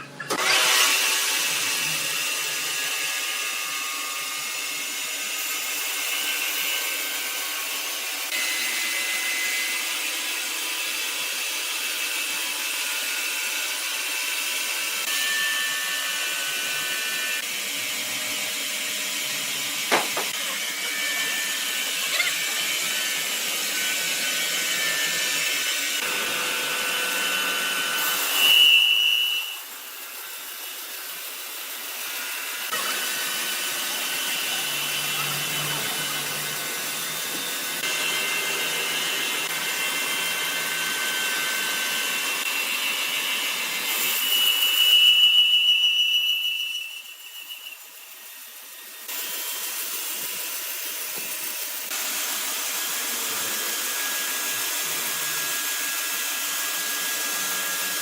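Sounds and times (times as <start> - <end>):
saw whining through wood: 0.0 - 58.0
loud sharp squeal: 28.3 - 29.7, 44.2 - 47.9.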